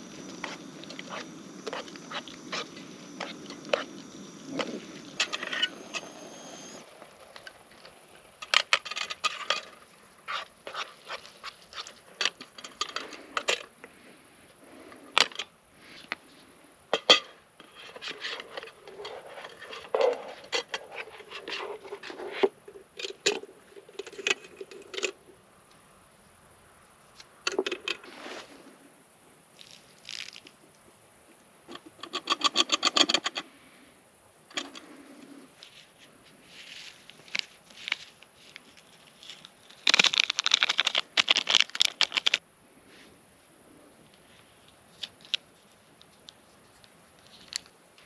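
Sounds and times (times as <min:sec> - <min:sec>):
camp cookware clinking: 0:00.0 - 0:06.8.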